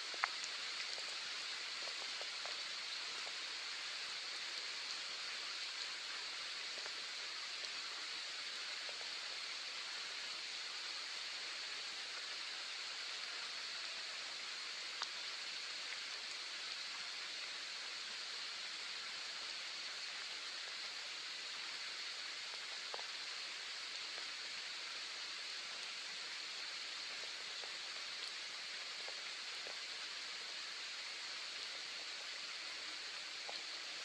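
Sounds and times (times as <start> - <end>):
raindrops ticking: 0.0 - 3.3
soft rain falling: 0.0 - 34.0.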